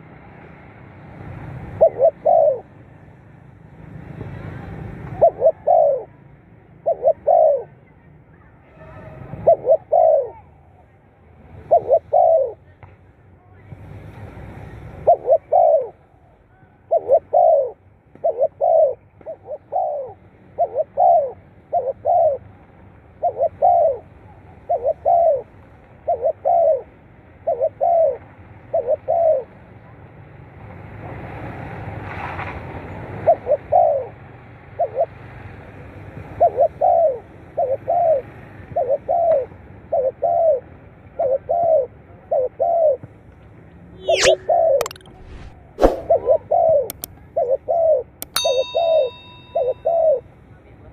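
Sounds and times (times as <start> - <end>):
dove cooing: 1.8 - 2.6, 5.2 - 6.1, 6.8 - 7.7, 9.4 - 10.4, 11.7 - 12.6, 16.9 - 22.4, 23.2 - 24.1, 24.7 - 25.4, 26.1 - 29.5, 33.3 - 34.1, 36.4 - 38.2, 38.8 - 40.6, 41.2 - 43.0.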